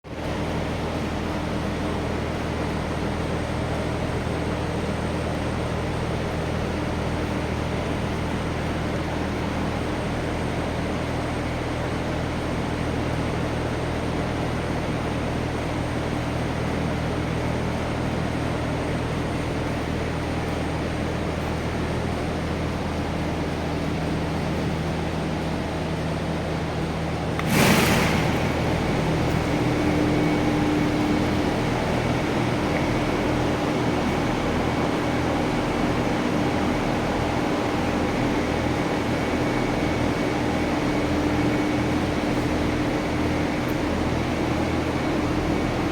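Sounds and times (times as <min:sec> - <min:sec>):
low motor hum: 0:17.8 - 0:45.9
rush of air from fan: 0:27.2 - 0:45.9.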